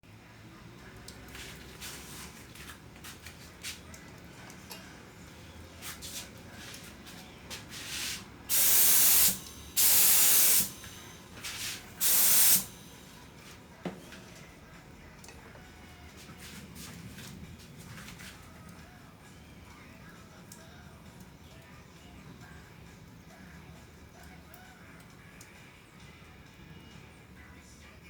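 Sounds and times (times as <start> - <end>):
spray can hissing: 7.5 - 12.9.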